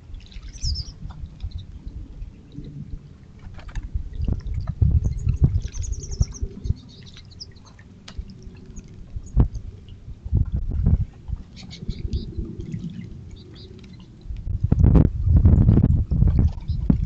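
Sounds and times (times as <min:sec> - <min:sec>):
low rumbling: 0:00.0 - 0:17.0
small birds chirping: 0:00.3 - 0:01.7, 0:05.1 - 0:07.8, 0:11.5 - 0:12.4, 0:13.3 - 0:14.2.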